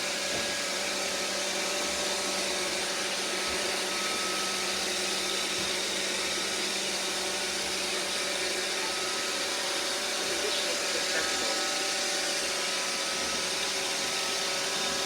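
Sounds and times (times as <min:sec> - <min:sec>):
robot vacuum hissing: 0:09.7 - 0:13.4.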